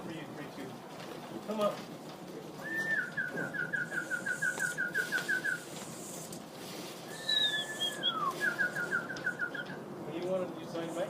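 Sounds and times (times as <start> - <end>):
person whistling: 2.6 - 5.6, 7.1 - 9.6.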